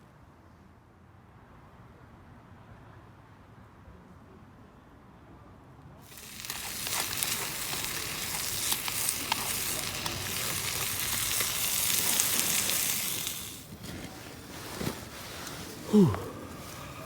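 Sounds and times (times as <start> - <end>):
food sizzling in a pan: 6.0 - 13.7.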